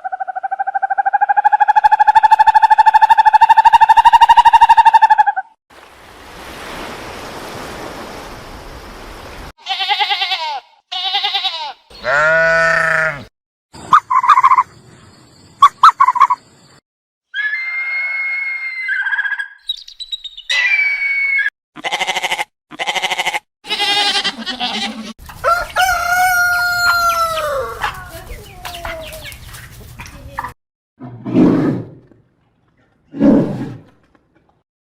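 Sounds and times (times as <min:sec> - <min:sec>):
farm animal calls: 0:09.7 - 0:14.8, 0:21.8 - 0:30.5
rooster crowing: 0:25.4 - 0:28.0.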